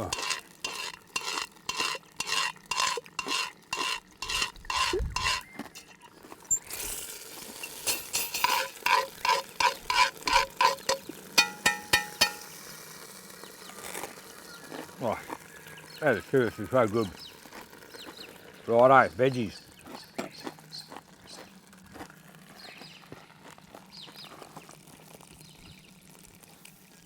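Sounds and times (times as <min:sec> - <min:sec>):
crunching and scraping of eating: 0:00.0 - 0:27.0
cutlery clinking: 0:00.1 - 0:12.6.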